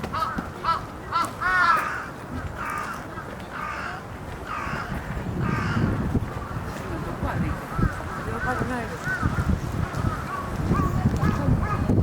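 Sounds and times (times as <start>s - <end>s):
crows cawing: 0.1s - 6.0s, 7.5s - 10.9s.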